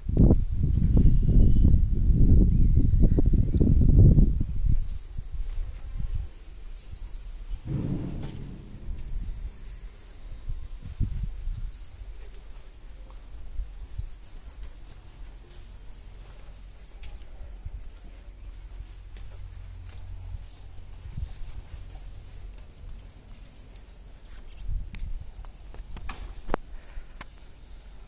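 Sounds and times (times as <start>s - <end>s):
small birds chirping: 6.6s - 7.5s, 11.1s - 28.0s
brief low sound: 7.7s - 9.9s.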